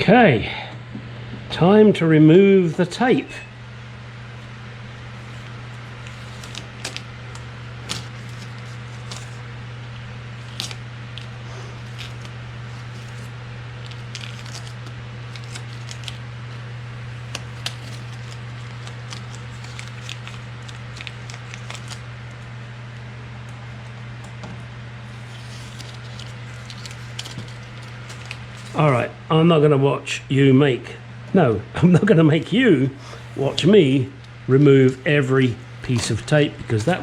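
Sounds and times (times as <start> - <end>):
steady low hum: 0.0 - 37.0
adhesive tape peeling: 5.1 - 9.5, 10.3 - 16.2, 17.2 - 22.1, 25.1 - 29.0.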